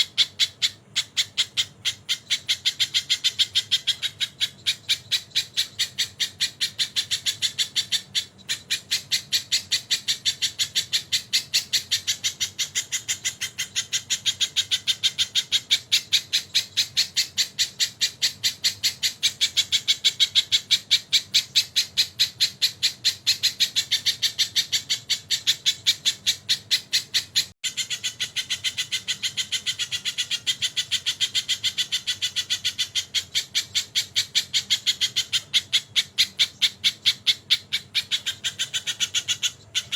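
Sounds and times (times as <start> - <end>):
songbird high-pitched calling: 0.0 - 39.9.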